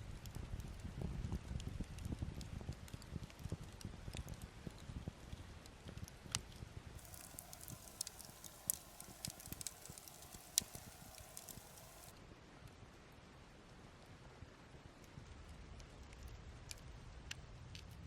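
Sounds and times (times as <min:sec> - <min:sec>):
campfire crackling: 0:07.0 - 0:12.2
faint steady hiss: 0:07.0 - 0:18.0.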